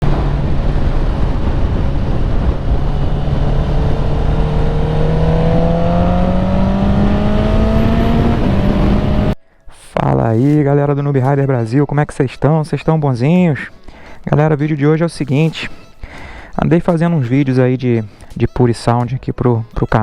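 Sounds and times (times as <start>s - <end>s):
motorcycle engine climbing: 0.0s - 9.4s.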